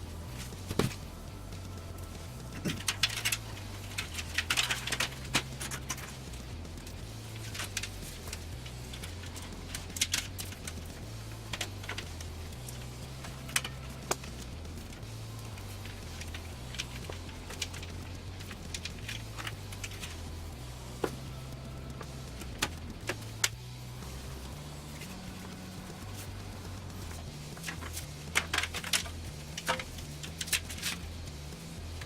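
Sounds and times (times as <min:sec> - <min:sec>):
quiet background music: 0:00.0 - 0:32.0
computer parts clicking and rattling: 0:02.5 - 0:06.2, 0:07.3 - 0:14.3, 0:27.5 - 0:31.1.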